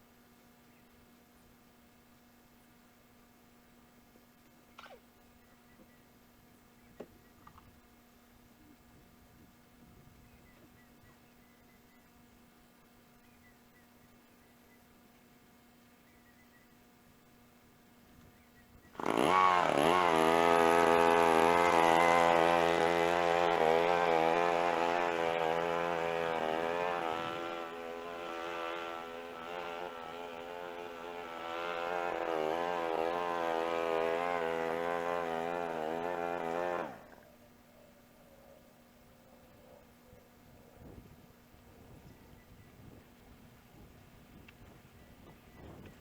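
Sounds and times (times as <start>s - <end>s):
string trimmer running: 18.9s - 37.3s.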